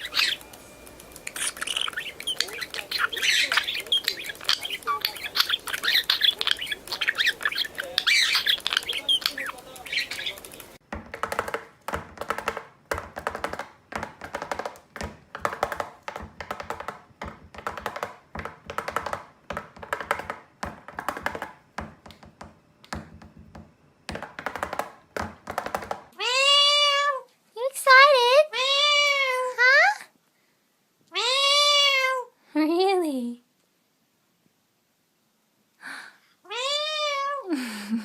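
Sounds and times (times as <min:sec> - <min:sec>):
parrot squawking: 0:00.0 - 0:00.6, 0:01.2 - 0:10.8, 0:26.2 - 0:27.1.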